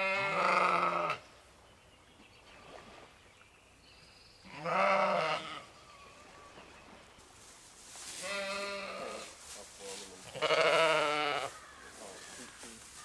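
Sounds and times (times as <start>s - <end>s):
farm animal bleating: 0.0s - 1.2s, 4.5s - 6.2s, 8.2s - 9.3s, 10.2s - 12.7s.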